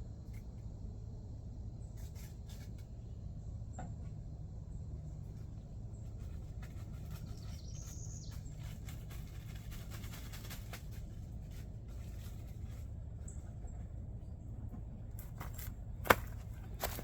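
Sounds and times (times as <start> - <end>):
low steady rumble: 0.0 - 17.0
clicks and rustles of hands: 8.3 - 12.9.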